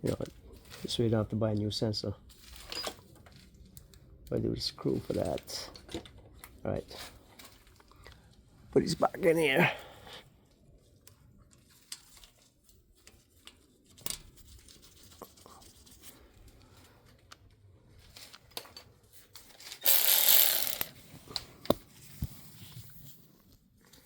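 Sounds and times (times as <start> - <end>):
metal parts clicking and tapping: 19.8 - 20.9.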